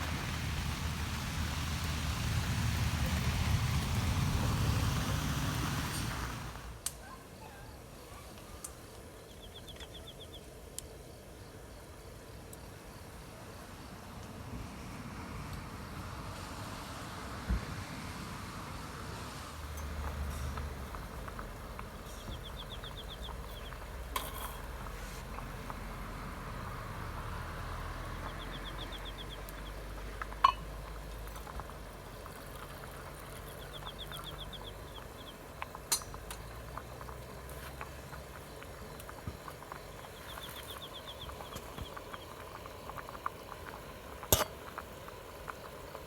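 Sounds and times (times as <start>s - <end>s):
steady low rumble: 0.0s - 6.8s, 20.0s - 44.1s.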